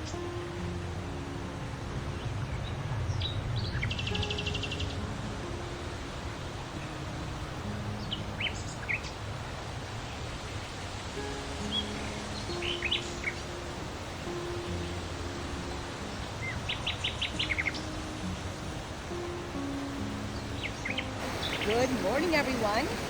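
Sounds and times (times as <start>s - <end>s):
songbirds chirping: 0.0s - 23.0s
bird trill: 11.4s - 23.0s.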